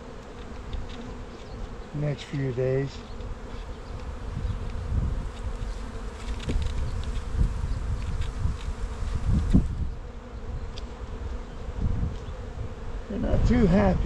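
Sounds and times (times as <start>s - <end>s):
bees buzzing: 0.0s - 14.0s
wind rumbling on microphone: 3.3s - 14.0s.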